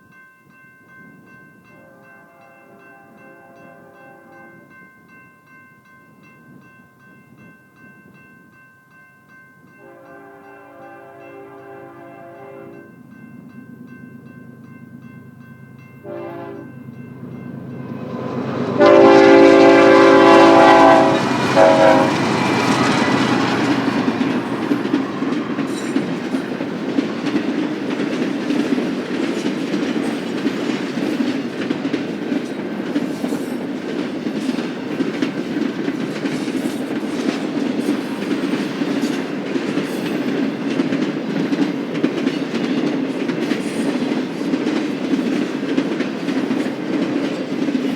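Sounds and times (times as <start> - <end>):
locomotive air horn: 9.8 - 12.8, 16.0 - 16.7, 18.6 - 24.1
locomotive engines droning: 14.2 - 32.8
wheels clicking over rail joints: 21.0 - 47.9.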